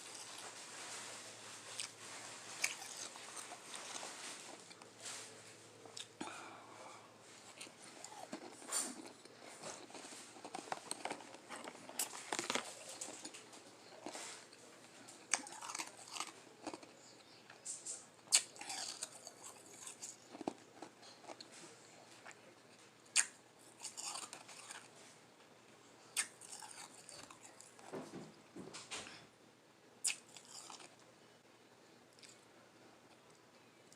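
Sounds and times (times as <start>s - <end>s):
crunching and chewing ice: 0.0s - 4.9s, 7.3s - 22.5s, 23.1s - 25.0s, 26.1s - 27.9s, 30.1s - 31.0s.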